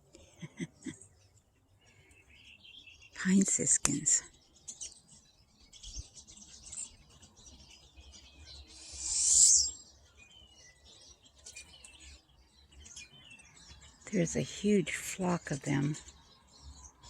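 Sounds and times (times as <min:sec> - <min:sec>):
birds chirping and twittering: 0:00.0 - 0:17.0
buzzy hissing sound: 0:08.7 - 0:09.8.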